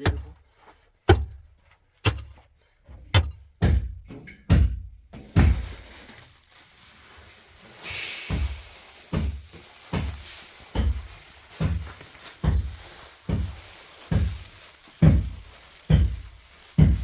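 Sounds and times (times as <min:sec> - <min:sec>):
short burst of hiss: 0:07.2 - 0:12.5.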